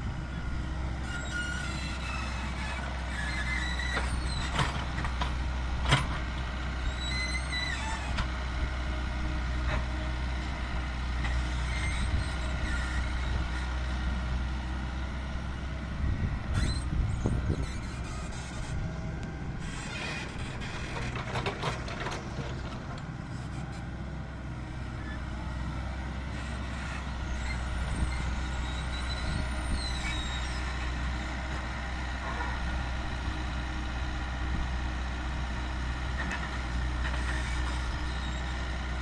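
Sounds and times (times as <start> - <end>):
diesel engine humming: 0.0 - 39.0
high metallic squeals: 1.0 - 4.5.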